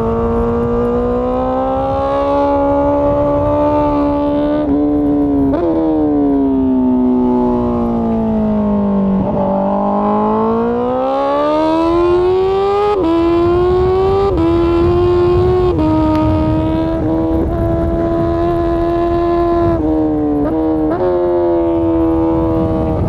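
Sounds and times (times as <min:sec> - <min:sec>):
motorcycle engine revving and shifting: 0:00.0 - 0:23.0.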